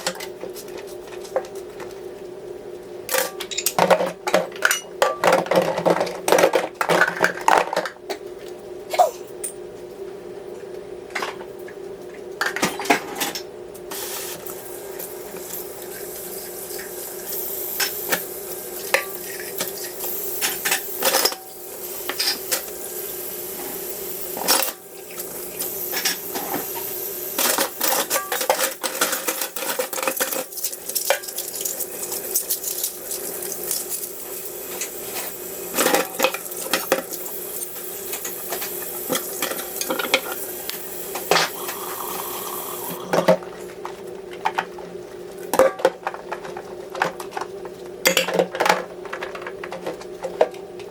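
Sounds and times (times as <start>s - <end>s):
steady hum: 0.0s - 44.6s.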